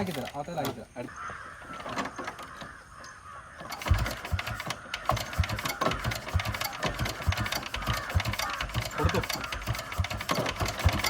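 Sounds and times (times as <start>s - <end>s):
diesel motorcycle engine thumping: 3.6s - 11.0s
engine clattering knock: 3.7s - 11.0s.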